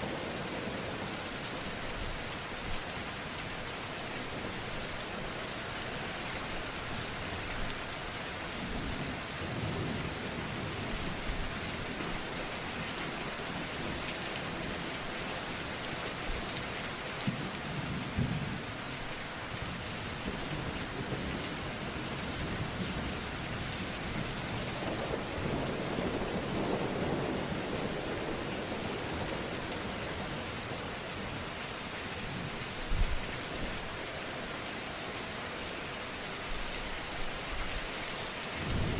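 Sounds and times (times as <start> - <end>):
rain falling: 0.0 - 38.9
thunder rumbling: 38.6 - 38.9.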